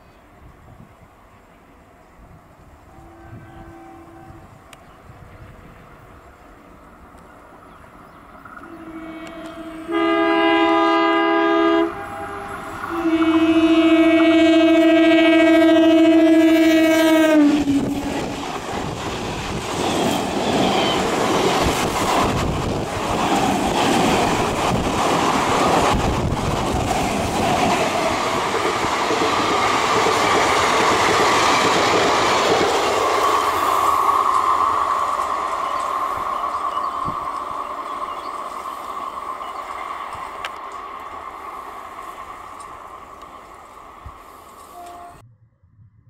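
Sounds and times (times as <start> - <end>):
train passing with clickety-clack: 0.0 - 45.2
locomotive horn blast: 2.8 - 4.7, 8.6 - 18.5, 44.6 - 45.2.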